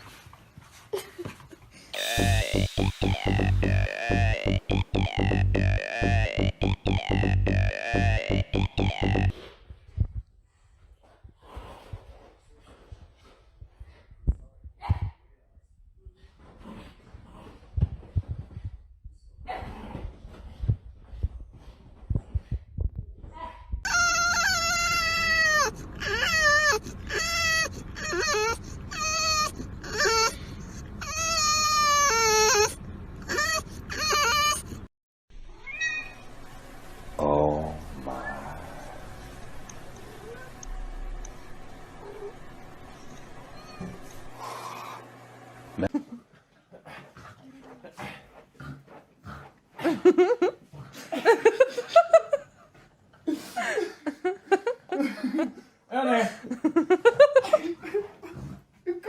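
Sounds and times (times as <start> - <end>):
person laughing: 2.0 - 9.3.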